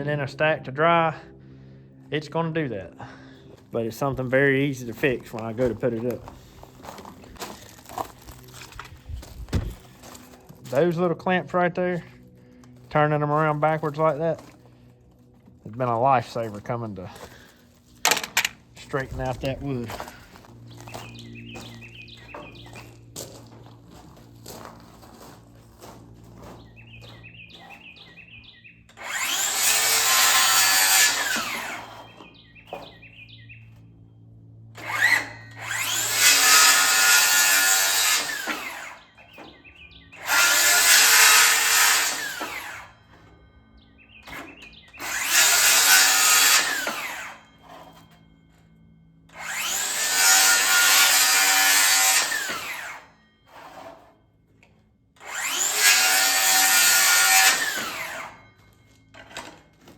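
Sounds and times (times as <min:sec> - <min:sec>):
power tool working into wood: 0:28.9 - 0:32.4, 0:34.8 - 0:39.1, 0:40.2 - 0:42.9, 0:44.3 - 0:48.2, 0:49.3 - 0:54.2, 0:55.2 - 0:58.4.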